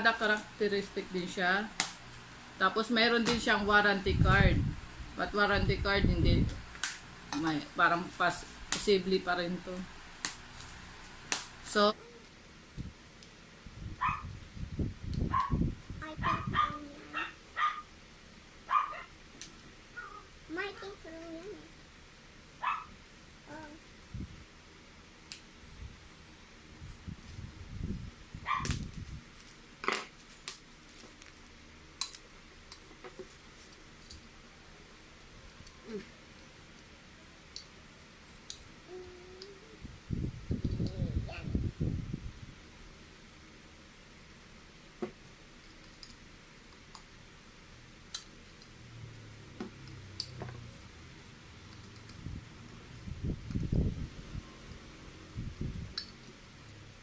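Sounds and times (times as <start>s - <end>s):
small clicks and taps of parts: 45.0s - 47.1s, 49.6s - 50.6s, 51.7s - 52.8s.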